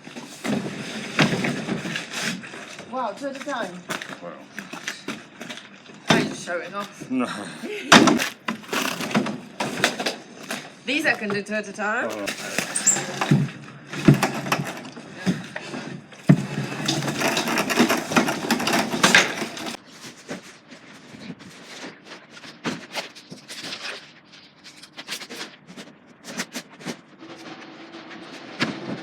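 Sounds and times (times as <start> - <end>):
goods scraping and clattering: 0.0 - 7.1, 8.0 - 29.0
knocks and clicks of items: 16.2 - 19.8.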